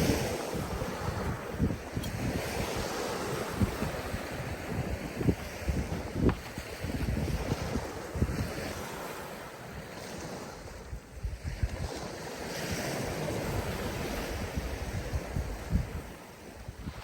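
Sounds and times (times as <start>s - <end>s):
sea waves washing on shore: 0.0s - 17.0s
wind gusting on microphone: 0.0s - 17.0s.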